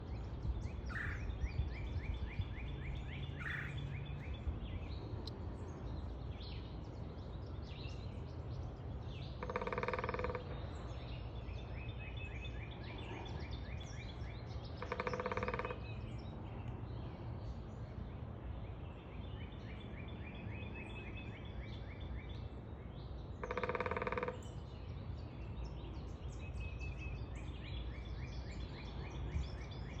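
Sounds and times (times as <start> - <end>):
birds singing trills: 0.0 - 30.0
woodpecker drumming: 9.4 - 10.6, 14.8 - 15.8, 23.4 - 24.5.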